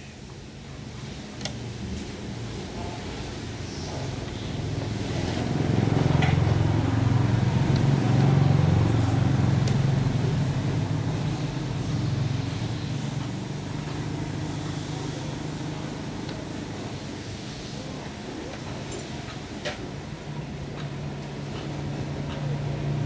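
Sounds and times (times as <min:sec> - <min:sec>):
low engine rumble: 0:02.5 - 0:18.0.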